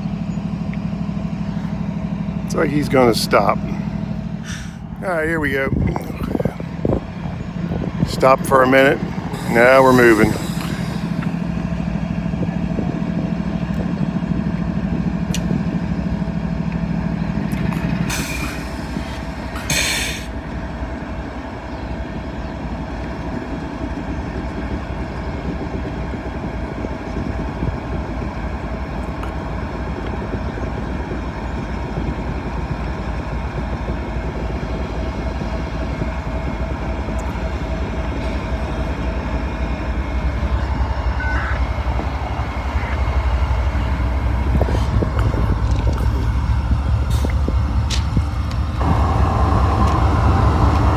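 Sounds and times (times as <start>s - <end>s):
low hum: 0.0s - 20.7s, 27.2s - 50.9s
short hissing bursts: 9.3s - 11.6s, 18.1s - 20.3s
train wheels clattering: 28.4s - 50.9s.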